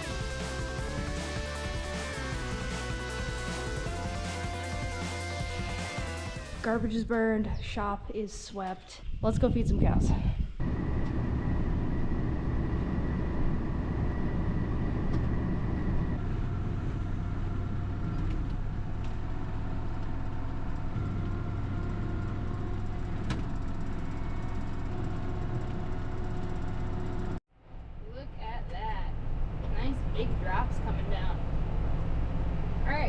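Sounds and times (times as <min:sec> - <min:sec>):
faint engine whine: 0:10.6 - 0:28.4
vehicle engine rumble: 0:10.6 - 0:33.0.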